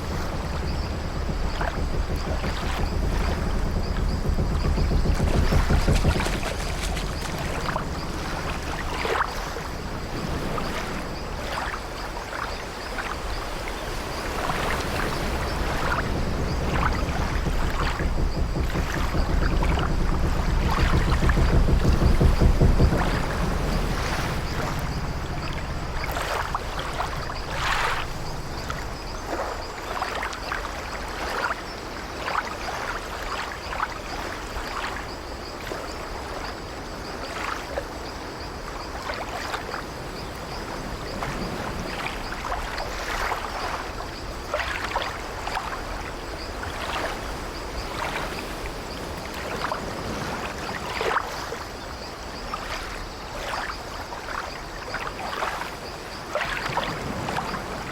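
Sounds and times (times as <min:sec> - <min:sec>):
ship timbers creaking: 0:00.0 - 0:11.2, 0:13.8 - 0:29.4
water lapping against wooden hull: 0:00.0 - 0:57.9.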